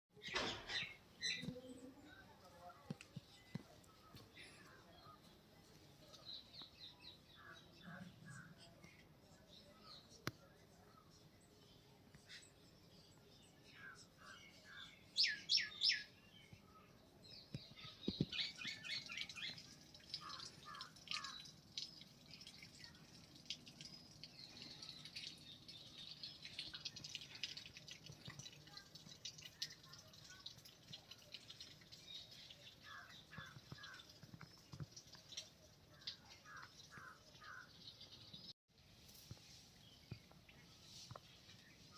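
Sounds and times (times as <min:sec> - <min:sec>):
birds chirping and calling: 0:00.2 - 0:02.4, 0:12.1 - 0:16.7, 0:17.4 - 0:28.5, 0:29.2 - 0:38.5.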